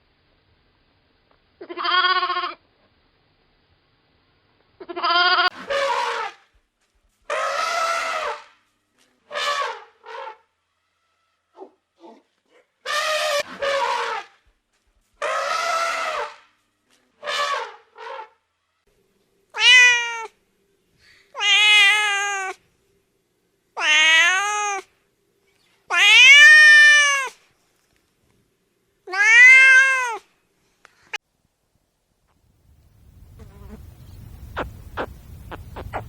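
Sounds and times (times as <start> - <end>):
cat meowing: 19.6 - 20.3, 21.4 - 22.6, 23.8 - 24.9, 25.9 - 27.4, 29.1 - 30.2.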